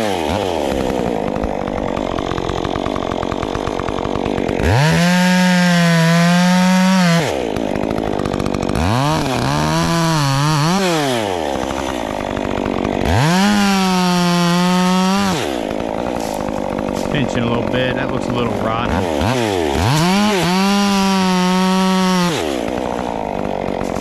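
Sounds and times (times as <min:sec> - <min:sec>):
chainsaw revving: 0:00.0 - 0:24.0.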